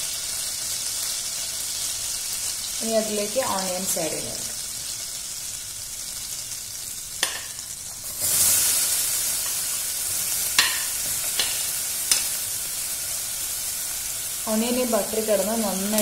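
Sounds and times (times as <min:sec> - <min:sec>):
garlic sizzling in butter: 0:00.0 - 0:16.0
onions tipped into hot fat: 0:09.4 - 0:12.4.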